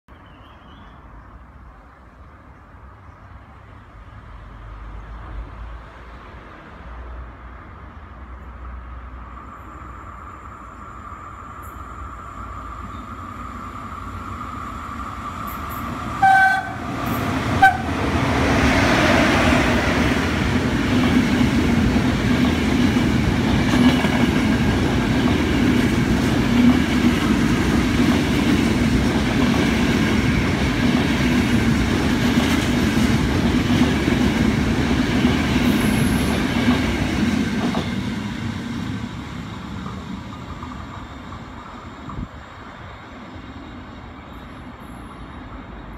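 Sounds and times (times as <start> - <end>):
passenger train passing at speed: 0.2 - 45.9
train horn blasts: 16.2 - 18.1.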